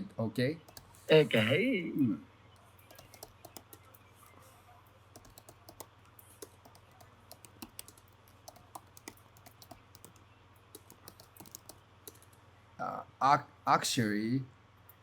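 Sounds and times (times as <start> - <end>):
typing on keyboard: 0.7 - 0.9, 2.6 - 4.1, 5.2 - 12.3.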